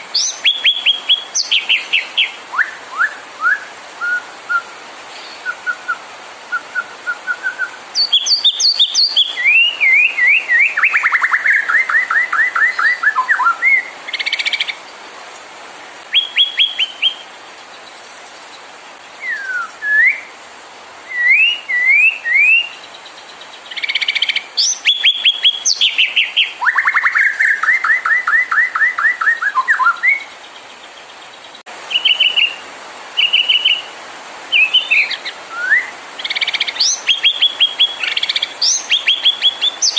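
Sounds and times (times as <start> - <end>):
songbird singing whistles and trills: 0.0 - 14.8, 16.0 - 18.0, 19.2 - 20.4, 21.1 - 32.6, 33.2 - 33.9, 34.5 - 39.9.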